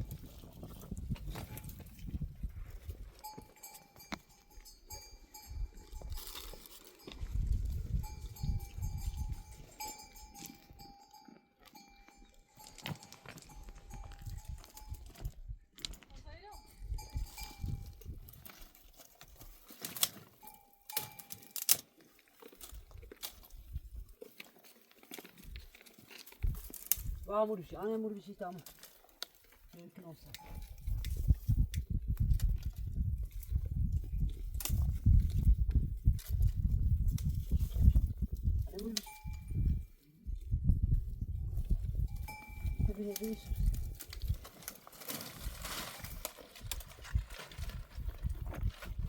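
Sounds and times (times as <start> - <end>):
livestock bell ringing: 3.2 - 15.3, 16.4 - 18.0, 20.4 - 21.6, 30.4 - 30.8, 38.8 - 39.8, 42.0 - 43.7.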